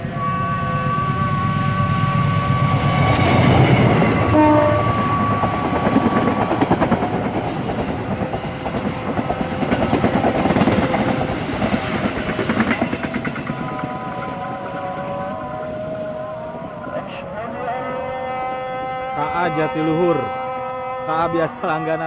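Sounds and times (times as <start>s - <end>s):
train horn blast: 0.0s - 6.6s
train wheels clattering: 2.7s - 15.6s.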